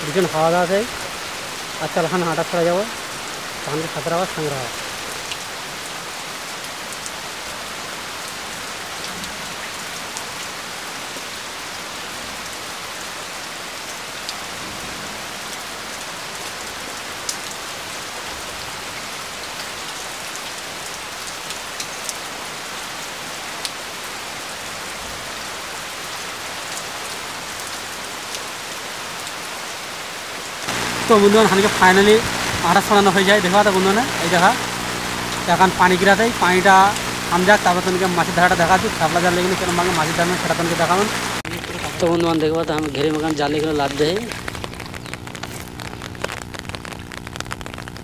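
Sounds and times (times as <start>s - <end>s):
rain falling on pond water: 0.0s - 48.0s.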